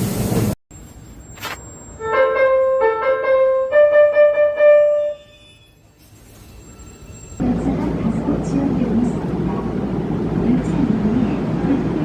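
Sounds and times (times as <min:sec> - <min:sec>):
electronic keyboard melody: 0:02.0 - 0:05.2.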